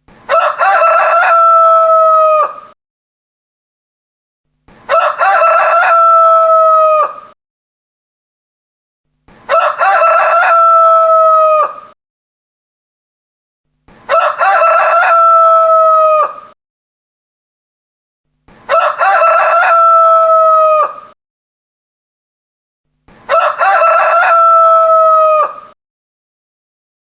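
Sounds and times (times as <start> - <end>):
rooster crowing: 0.3 - 2.8, 4.9 - 7.4, 9.5 - 12.0, 14.1 - 16.6, 18.7 - 21.2, 23.3 - 25.8.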